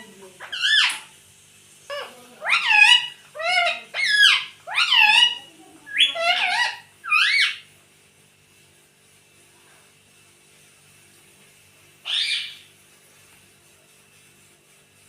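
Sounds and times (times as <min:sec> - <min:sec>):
parrot calling: 0:00.0 - 0:01.1, 0:01.8 - 0:07.7, 0:12.0 - 0:12.7.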